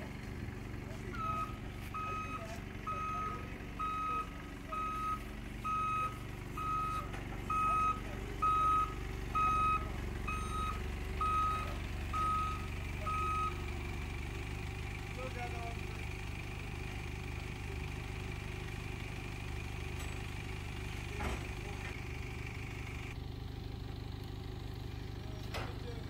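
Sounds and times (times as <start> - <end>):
truck reversing alarm beeping: 0.0 - 14.6
diesel engine humming: 0.0 - 26.0.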